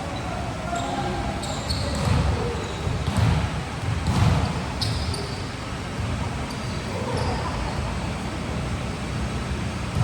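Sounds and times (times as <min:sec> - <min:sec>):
sneakers squeaking on floor: 0:00.0 - 0:07.9
volleyball thumping: 0:03.0 - 0:04.7.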